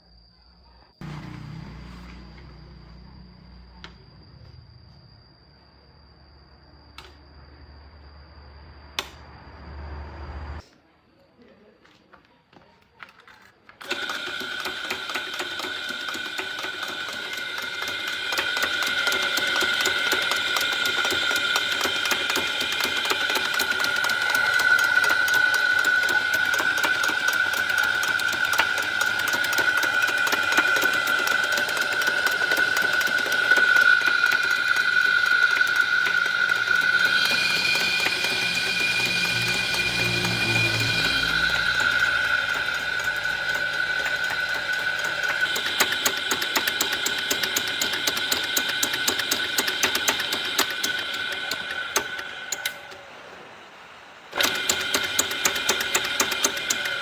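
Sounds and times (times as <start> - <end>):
small electric motor whining: 13.8 - 53.0
fast even clicking: 41.4 - 52.8.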